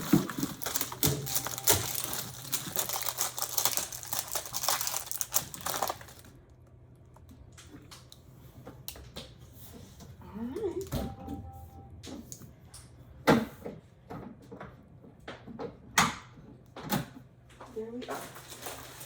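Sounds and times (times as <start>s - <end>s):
packing material rustling: 0.0s - 6.6s, 18.1s - 19.0s
faint low hum: 0.0s - 13.3s.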